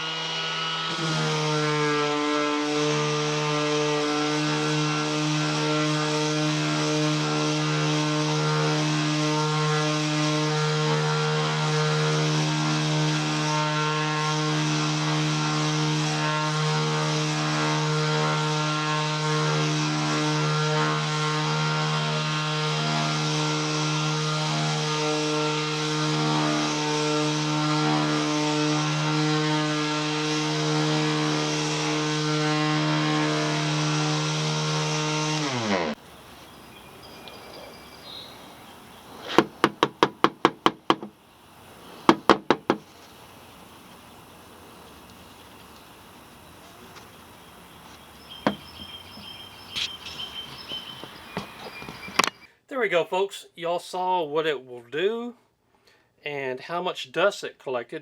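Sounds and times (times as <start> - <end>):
orbital sander running on wood: 0.0 - 52.2
sharp knocks: 39.2 - 41.2, 42.0 - 42.9, 48.4 - 48.9.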